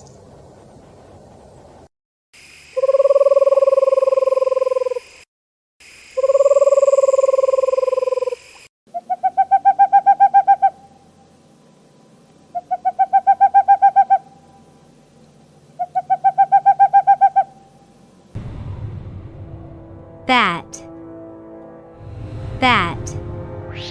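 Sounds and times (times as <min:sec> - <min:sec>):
owl trilled calls: 0:02.8 - 0:05.1, 0:06.2 - 0:11.0, 0:12.5 - 0:14.6, 0:15.7 - 0:17.9
owl hooting: 0:02.8 - 0:05.2, 0:06.2 - 0:11.1, 0:12.5 - 0:14.8, 0:15.7 - 0:18.0.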